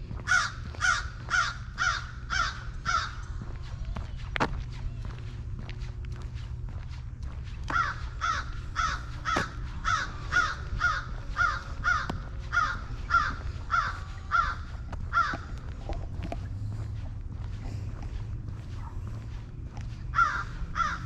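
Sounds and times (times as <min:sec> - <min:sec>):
bird calling: 0:00.3 - 0:03.8, 0:07.5 - 0:15.6, 0:20.1 - 0:21.0.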